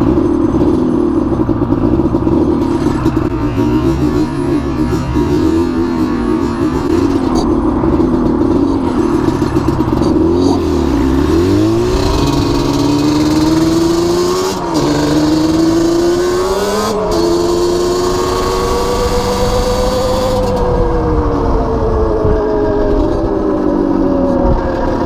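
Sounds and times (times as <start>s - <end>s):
small motorbike engine revving: 0.0s - 20.9s
wind rush: 18.2s - 25.0s.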